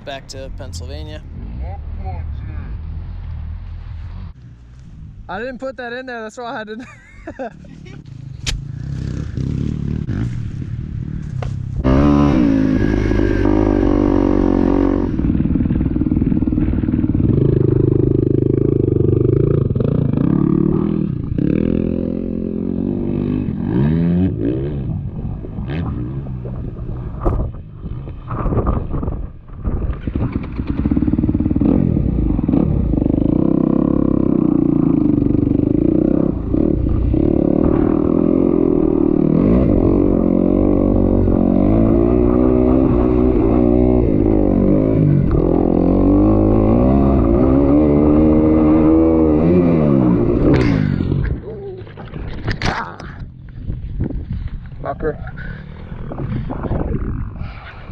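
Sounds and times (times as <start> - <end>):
dirt bike engine revving: 8.5 - 25.0, 30.0 - 52.8.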